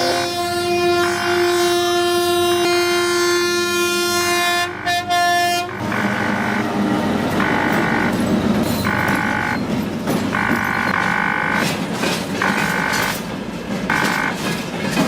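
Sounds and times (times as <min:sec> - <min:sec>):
train air horn blast: 0:00.0 - 0:09.6, 0:10.3 - 0:11.7, 0:13.9 - 0:14.5.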